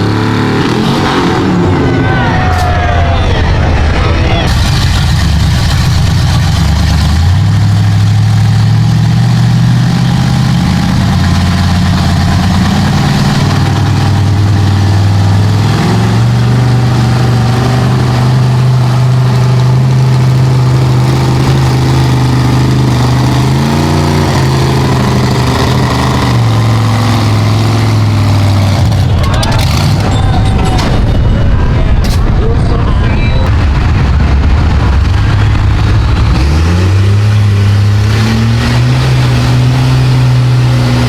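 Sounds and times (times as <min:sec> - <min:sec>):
truck engine running: 0:00.0 - 0:41.0.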